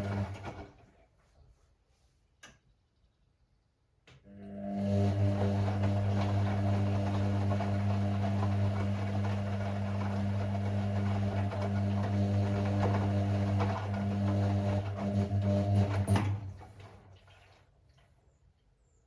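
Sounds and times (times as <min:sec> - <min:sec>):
drain pump humming: 0:00.0 - 0:00.7, 0:04.3 - 0:18.1.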